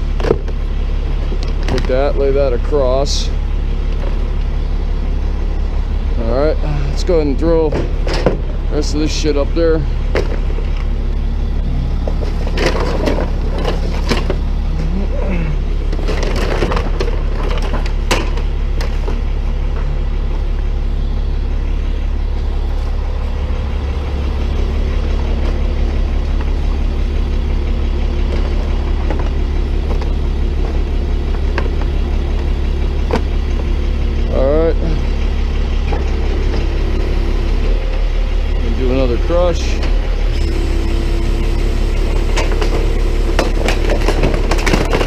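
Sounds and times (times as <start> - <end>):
truck engine running: 0.0 - 45.0
car parts clattering into a bin: 7.7 - 8.5, 12.1 - 14.4, 15.9 - 19.2, 43.4 - 45.0.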